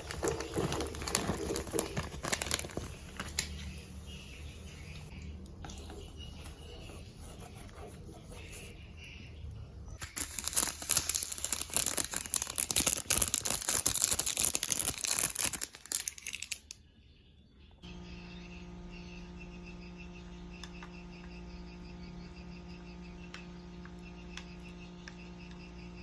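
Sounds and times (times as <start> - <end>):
plastic packaging crinkling: 0.0 - 3.8, 10.0 - 16.8.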